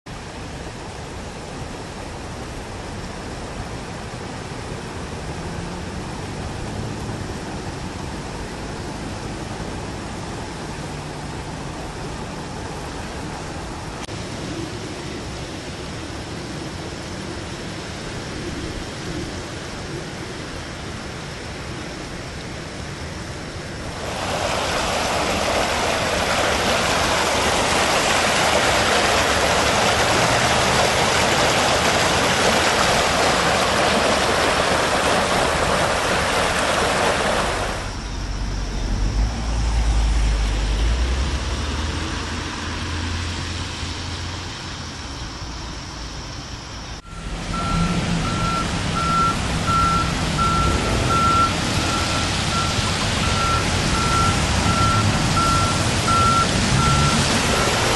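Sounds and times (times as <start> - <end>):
floodwater rushing loudly: 0.1 - 18.4, 19.0 - 38.0, 47.1 - 57.9
truck engine noise: 23.2 - 45.4, 46.9 - 57.9
truck reversing beeper: 47.0 - 57.9.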